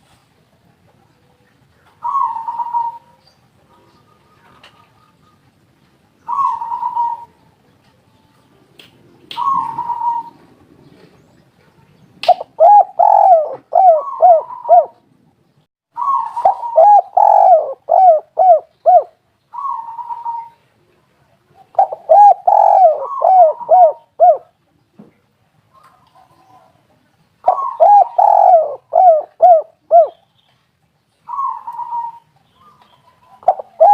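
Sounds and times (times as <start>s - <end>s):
dove cooing: 2.0s - 5.5s, 6.2s - 7.4s, 9.4s - 11.2s, 12.3s - 15.0s, 16.0s - 20.6s, 21.6s - 24.6s, 27.4s - 30.2s, 31.3s - 33.9s.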